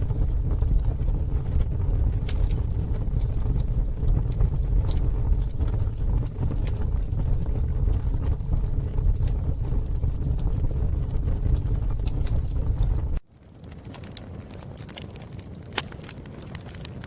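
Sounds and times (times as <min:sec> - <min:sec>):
deep steady rumble: 0:00.0 - 0:13.2
campfire crackling and popping: 0:00.0 - 0:17.0.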